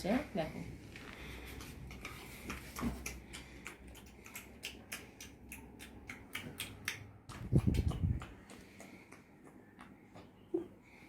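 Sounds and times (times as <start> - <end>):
mouth smacking clicks: 1.6 - 10.8.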